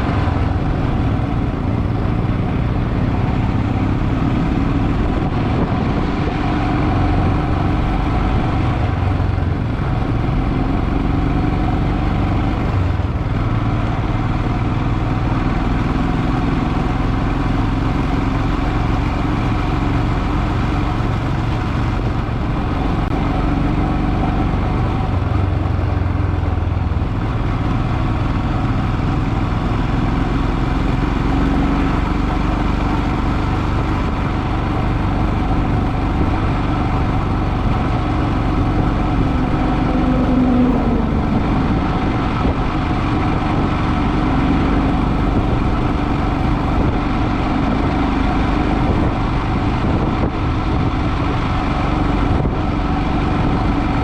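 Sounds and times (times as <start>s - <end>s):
motorcycle engine running: 0.0s - 54.0s
road noise: 0.0s - 54.0s.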